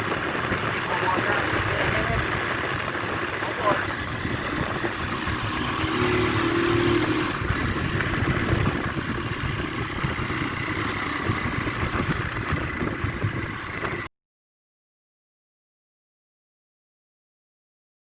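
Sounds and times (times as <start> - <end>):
motorcycle engine running: 0.0 - 14.1
road noise: 0.0 - 14.1
wind on microphone: 0.0 - 14.1.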